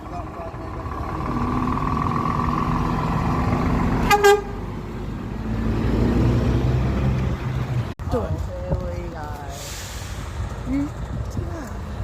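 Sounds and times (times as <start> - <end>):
heavy vehicle engine rumble: 0.0 - 12.0
truck horn toot: 4.0 - 4.6.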